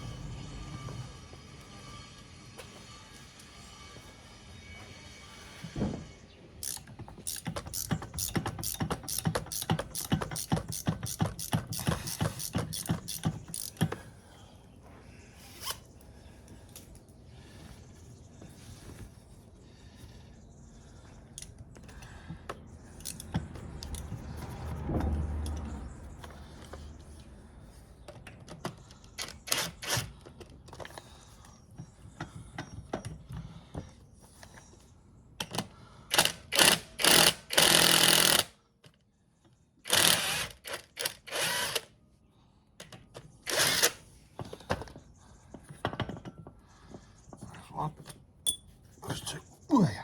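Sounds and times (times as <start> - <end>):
power tool bursts: 36.1 - 38.5, 39.9 - 41.9, 43.5 - 44.0
metal clinks: 48.4 - 48.8.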